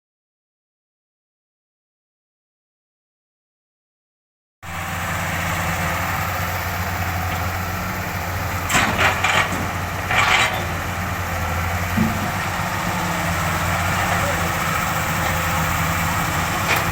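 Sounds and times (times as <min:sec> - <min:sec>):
excavator diesel engine idling: 0:04.6 - 0:16.9.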